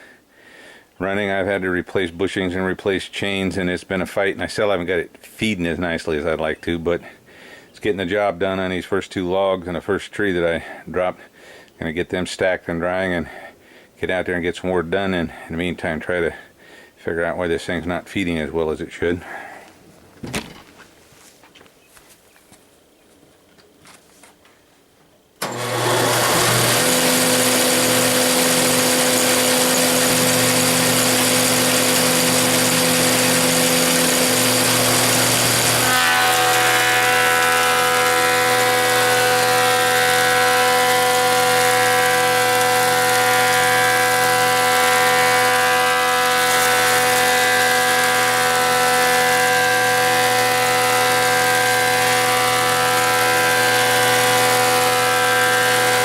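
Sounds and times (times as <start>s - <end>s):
planer machine humming: 25.4s - 56.0s.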